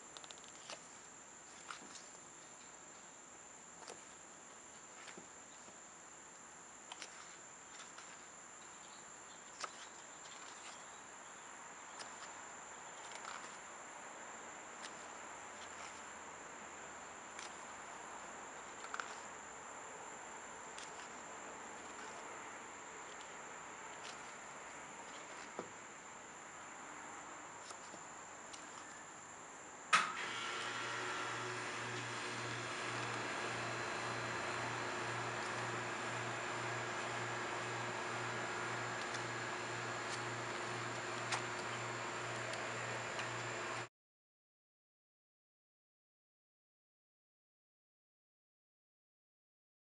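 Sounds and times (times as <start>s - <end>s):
cd packaging clicking: 31.8s - 43.8s.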